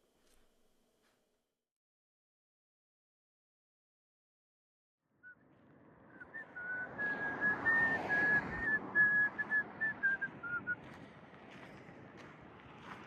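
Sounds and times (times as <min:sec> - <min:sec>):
outdoor background noise: 0:05.2 - 0:13.0
person whistling a tune: 0:06.3 - 0:10.8.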